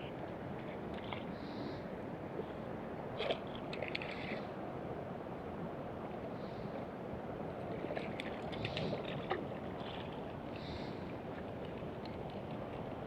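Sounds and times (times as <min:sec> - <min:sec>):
steady outdoor noise: 0:00.0 - 0:13.0.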